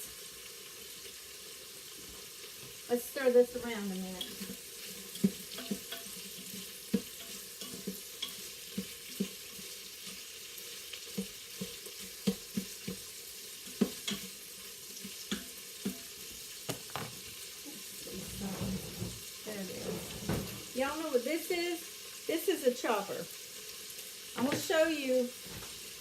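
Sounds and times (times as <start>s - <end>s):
chicken sizzling in oil: 0.0s - 26.0s
spoon knocking and scraping pot: 4.2s - 9.7s, 11.1s - 14.4s, 15.0s - 17.3s, 18.0s - 20.8s, 24.4s - 24.8s.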